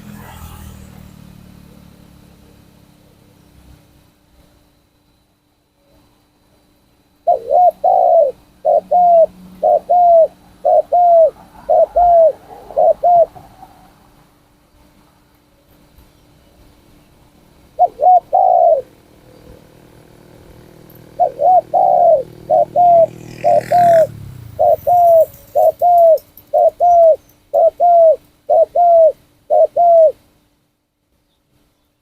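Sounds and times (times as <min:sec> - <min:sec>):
dove cooing: 0:07.2 - 0:14.0, 0:17.7 - 0:30.2.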